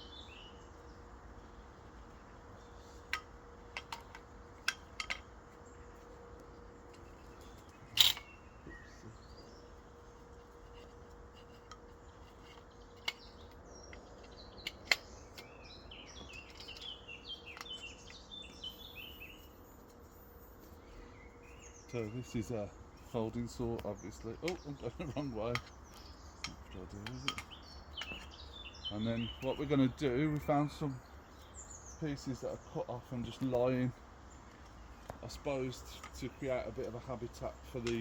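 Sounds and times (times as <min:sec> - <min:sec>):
bird chirps: 0:00.0 - 0:01.1, 0:06.8 - 0:38.0
faint steady hum: 0:00.0 - 0:38.0
sharp clicks and knocks: 0:03.0 - 0:05.6, 0:10.4 - 0:15.5, 0:23.4 - 0:28.4, 0:37.8 - 0:38.0.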